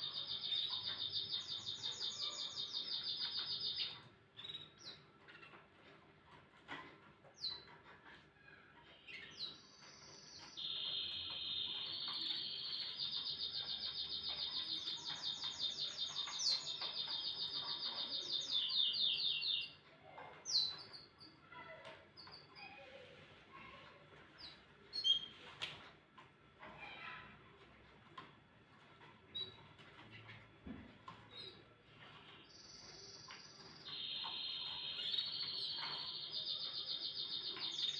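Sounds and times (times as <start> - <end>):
canary singing: 0.0 - 25.5, 28.1 - 37.9.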